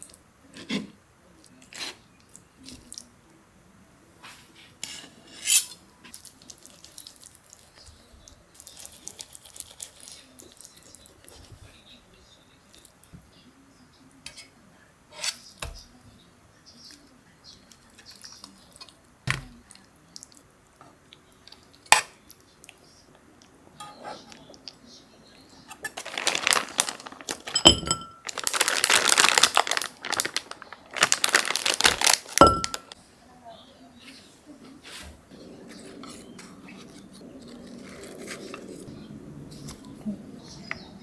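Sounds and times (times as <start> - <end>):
dishes clinking and knocking: 25.8 - 29.2, 32.0 - 33.0.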